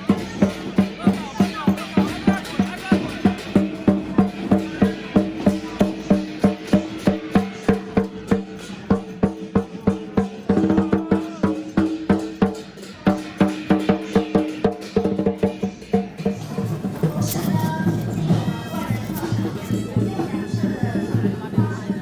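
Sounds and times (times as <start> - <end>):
drum roll: 0.0 - 22.0
percussion struck beats: 0.0 - 22.0.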